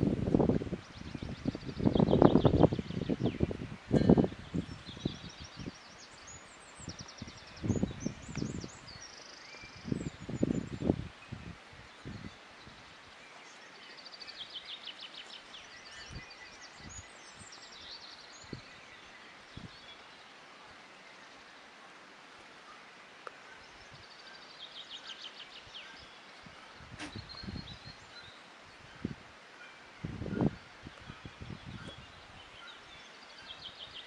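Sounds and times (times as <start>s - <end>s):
steady background hiss: 8.7s - 31.4s.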